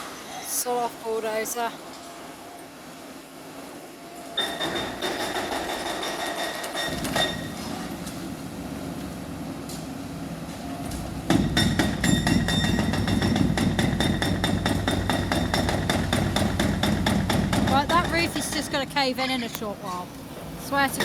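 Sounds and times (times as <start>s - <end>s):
heavy machine rumble: 6.9s - 21.0s.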